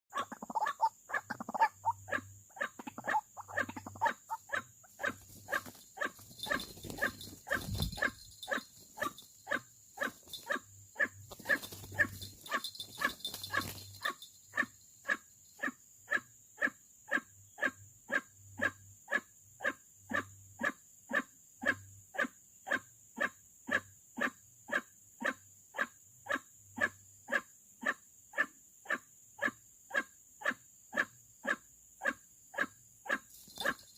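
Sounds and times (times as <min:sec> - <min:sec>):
bird croaking call: 0:00.1 - 0:22.8, 0:23.7 - 0:33.9
rustling: 0:04.9 - 0:10.6, 0:11.2 - 0:14.3.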